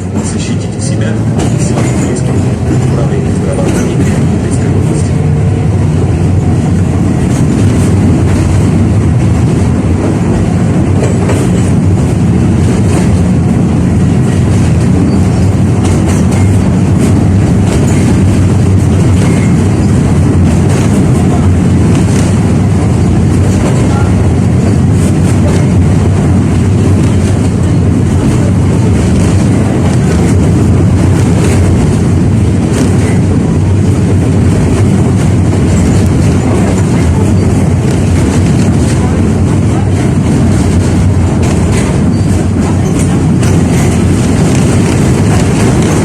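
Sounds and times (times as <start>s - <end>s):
wheels clicking on rails: 0.0s - 5.2s
tram rumbling along track: 0.0s - 46.0s.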